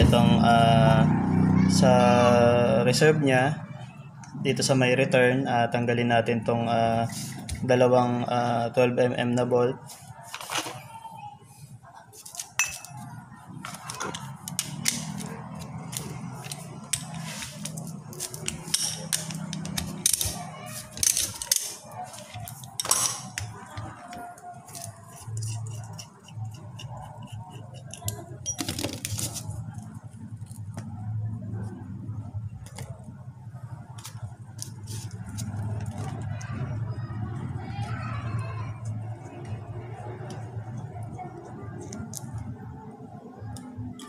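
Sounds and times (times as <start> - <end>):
tools and metal parts clinking: 12.4 - 13.0, 15.9 - 23.6, 27.8 - 29.5.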